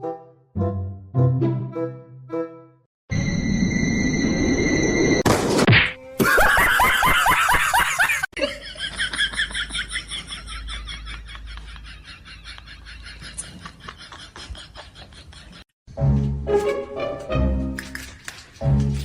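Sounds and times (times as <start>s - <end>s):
people laughing: 6.2s - 15.7s.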